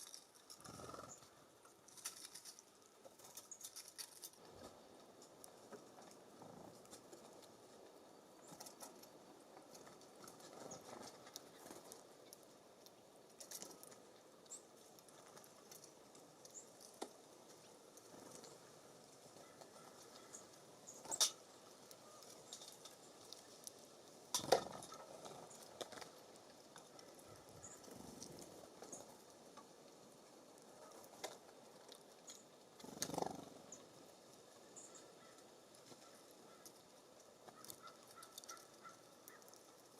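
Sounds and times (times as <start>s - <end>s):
birds tapping on wooden feeder: 22.0s - 26.2s.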